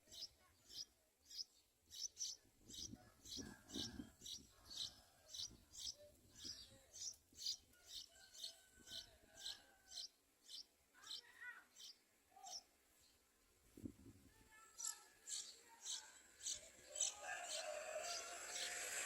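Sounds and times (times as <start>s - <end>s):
bird chicks begging chirps: 0.1s - 12.7s, 14.8s - 19.0s.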